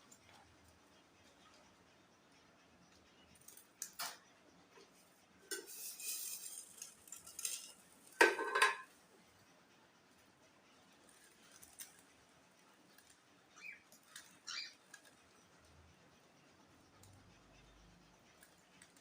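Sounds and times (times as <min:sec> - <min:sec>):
hard objects clattering: 0:05.4 - 0:09.0.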